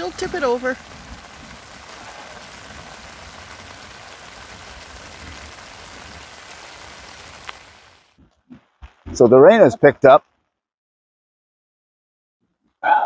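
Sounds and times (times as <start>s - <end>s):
rain falling on tarps: 0.0s - 10.4s.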